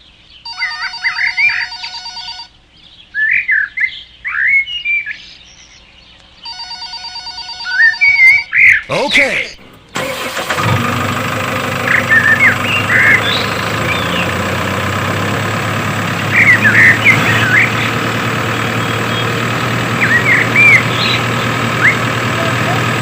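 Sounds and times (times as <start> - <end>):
toy tractor engine idling: 9.6 - 23.0.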